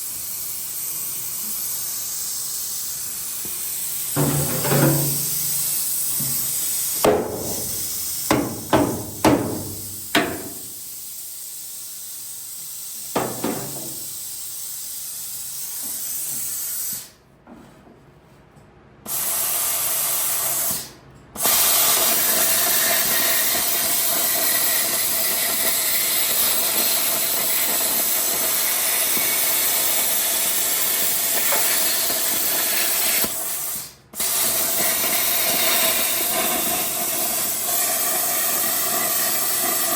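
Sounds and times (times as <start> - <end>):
plasma cutter hissing: 0.0 - 17.2, 19.1 - 39.9
sharp metallic knocks: 4.2 - 5.6, 7.0 - 10.6.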